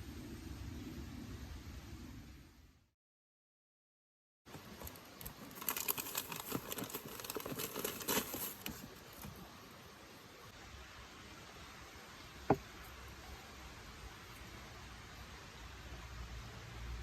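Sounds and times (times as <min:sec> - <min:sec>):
crinkling and crackling: 0:04.5 - 0:10.0.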